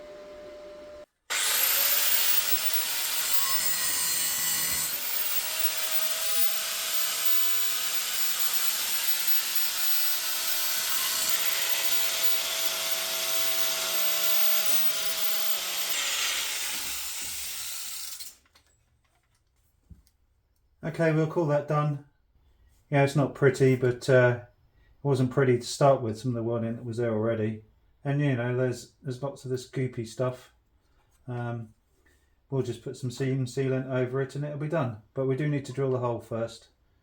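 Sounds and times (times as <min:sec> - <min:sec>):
power grinder grinding steel: 0:00.0 - 0:18.4.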